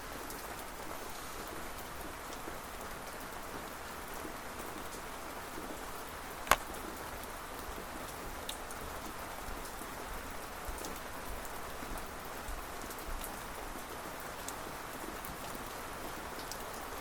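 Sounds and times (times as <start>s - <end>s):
rain falling: 0.0s - 17.0s
close ticks: 6.5s - 6.7s.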